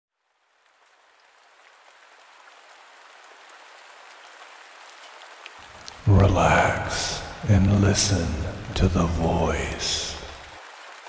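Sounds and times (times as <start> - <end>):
rain hissing: 5.6 - 10.7.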